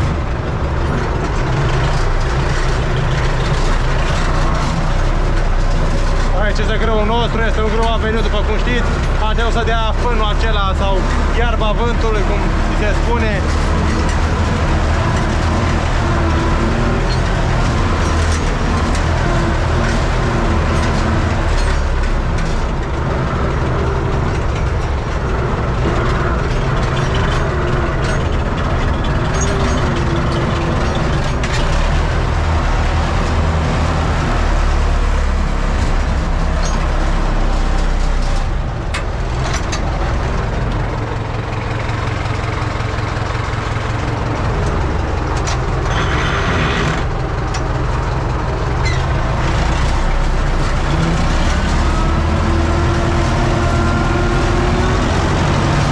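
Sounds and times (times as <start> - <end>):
clanks and rattles: 0.0 - 55.9
tractor diesel engine running: 0.0 - 55.9.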